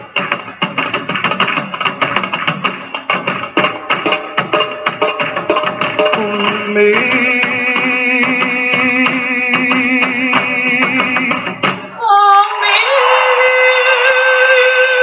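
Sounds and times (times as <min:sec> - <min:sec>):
women singing with vibrato: 0:06.2 - 0:15.0.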